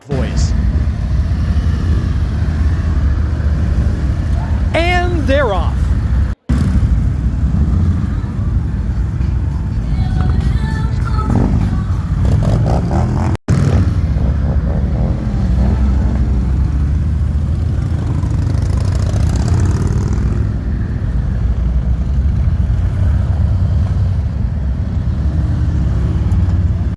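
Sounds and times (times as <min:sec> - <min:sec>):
motorcycles riding past: 0:00.4 - 0:04.8, 0:05.8 - 0:09.6, 0:11.1 - 0:26.9.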